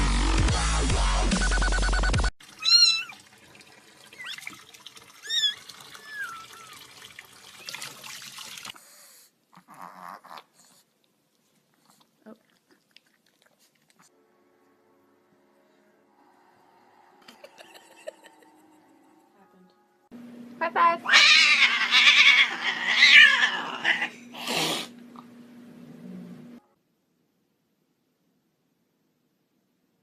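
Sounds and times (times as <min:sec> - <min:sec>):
dubstep music: 0:00.0 - 0:02.3
cat meowing loudly: 0:02.6 - 0:03.2, 0:21.1 - 0:24.1.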